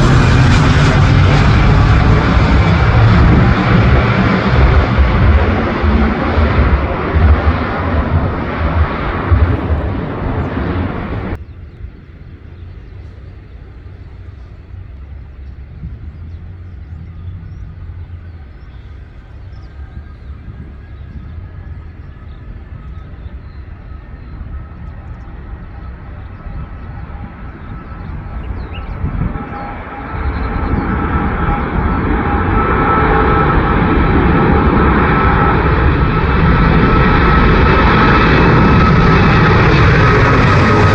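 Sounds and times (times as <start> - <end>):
distant low rumble: 0.0 - 40.9
faint jet engine whine: 0.0 - 40.9
jet engines rumbling: 0.0 - 40.9.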